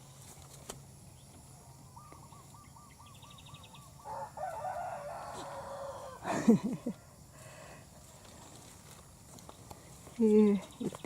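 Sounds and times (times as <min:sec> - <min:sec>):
short repeated bird calls: 0:01.8 - 0:04.3
rooster crowing: 0:04.0 - 0:06.6.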